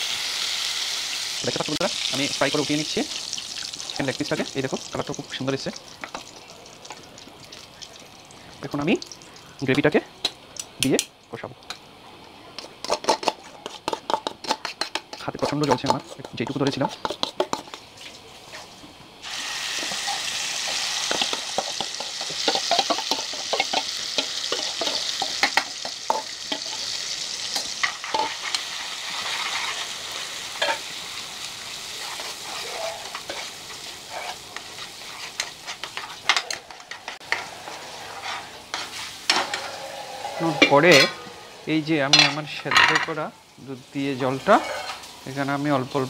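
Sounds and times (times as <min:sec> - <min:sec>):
paste sizzling in hot oil: 0:00.0 - 0:10.0, 0:12.6 - 0:46.0
metal spatula scraping pan: 0:32.0 - 0:43.1, 0:44.3 - 0:45.1.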